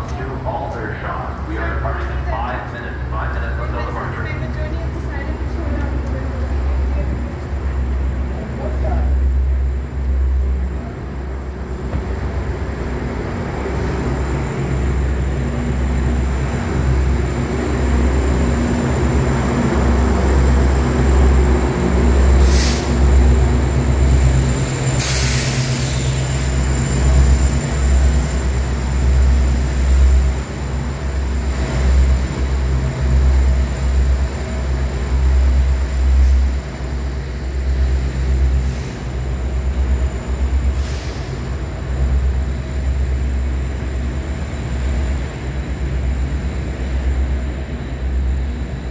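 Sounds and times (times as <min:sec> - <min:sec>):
diesel train engine rumble: 0:00.0 - 0:48.9.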